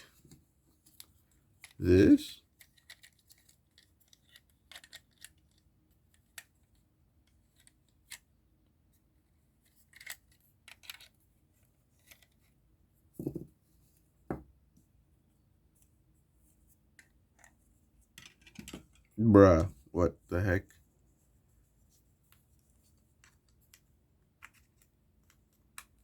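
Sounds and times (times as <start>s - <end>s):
plastic parts clicking and scraping: 2.4s - 8.3s, 9.6s - 11.2s, 11.9s - 12.5s, 17.0s - 19.2s, 22.9s - 26.0s.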